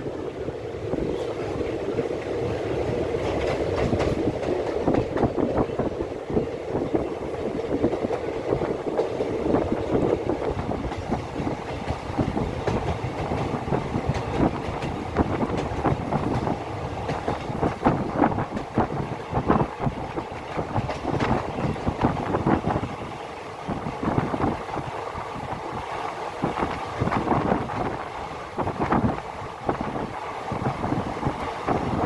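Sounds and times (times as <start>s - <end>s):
knocking and rattling clatter: 8.9s - 19.1s, 19.8s - 22.6s.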